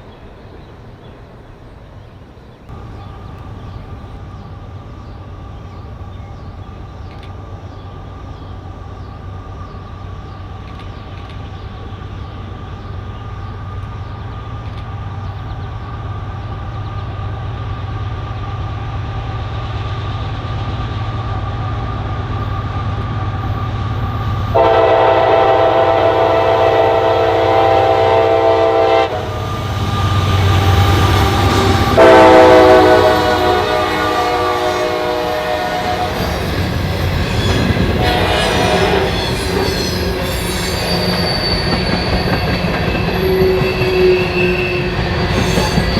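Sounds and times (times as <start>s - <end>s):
train rumbling: 0.0s - 45.9s
train horn blast: 24.5s - 36.7s, 37.4s - 41.1s.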